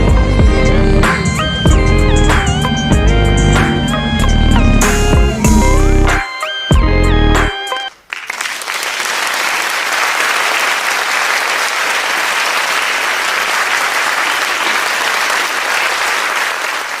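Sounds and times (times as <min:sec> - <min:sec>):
crowd applauding: 0:07.9 - 0:17.0.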